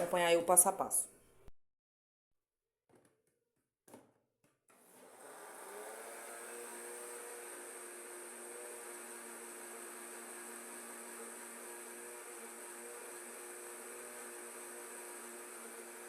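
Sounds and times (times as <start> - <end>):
blender running: 4.7 - 16.0.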